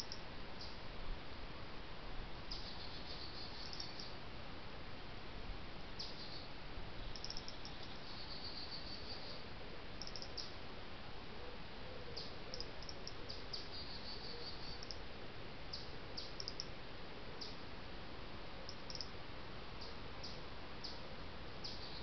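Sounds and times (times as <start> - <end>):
steady hiss: 0.0 - 11.5
small birds chirping: 2.5 - 4.2, 6.0 - 9.4, 10.0 - 10.6, 12.2 - 15.0, 15.7 - 16.7, 19.8 - 21.0, 21.6 - 22.0.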